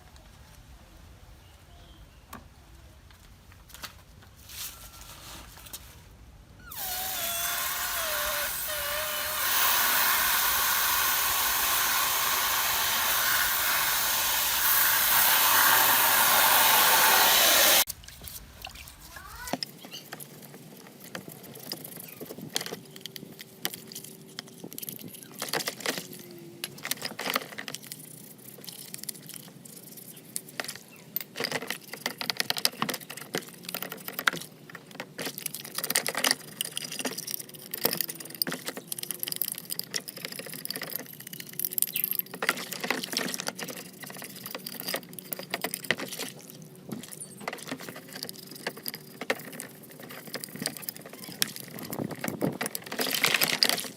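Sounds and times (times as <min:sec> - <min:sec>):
small metal parts clicking: 0:19.5 - 0:53.9.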